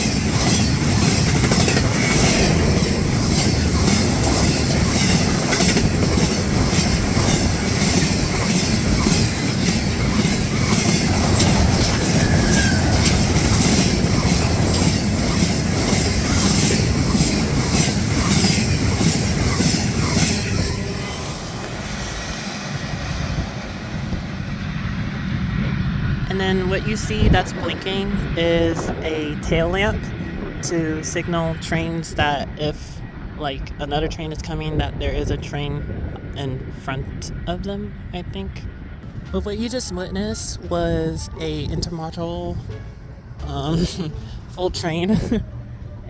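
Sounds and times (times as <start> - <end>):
wheels clicking over rail joints: 0.0 - 21.0
freight train rolling past: 0.0 - 46.0.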